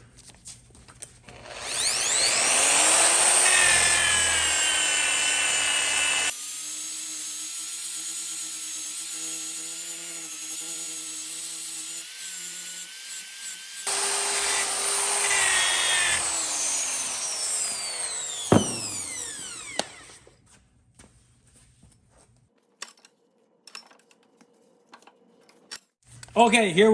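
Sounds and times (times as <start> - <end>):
angle grinder sanding metal: 1.5 - 20.2.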